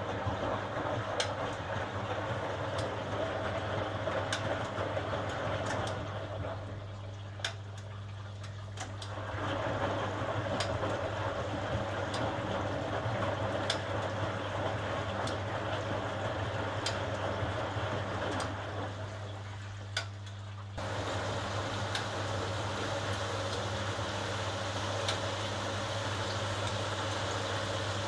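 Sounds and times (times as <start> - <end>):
washing machine hum: 0.0 - 28.0
rushing water noise: 20.8 - 28.0.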